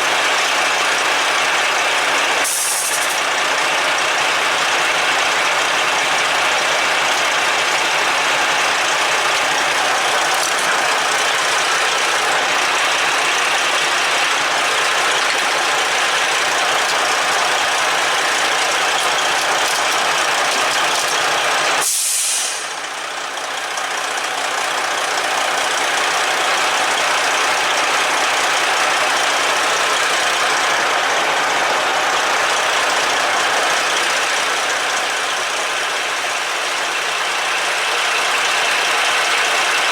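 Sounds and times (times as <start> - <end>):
diesel truck engine idling: 0.0 - 39.9
short sharp hiss: 2.5 - 3.2, 21.8 - 22.7.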